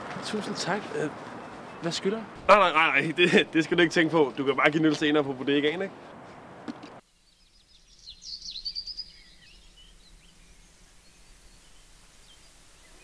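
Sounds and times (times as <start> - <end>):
quiet outdoor ambience: 0.0 - 13.0
high bird chirps and trills: 7.0 - 13.0.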